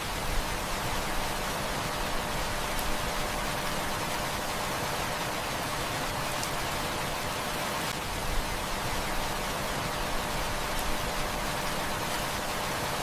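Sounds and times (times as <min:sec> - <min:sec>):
heavy rain hissing: 0:00.0 - 0:13.0.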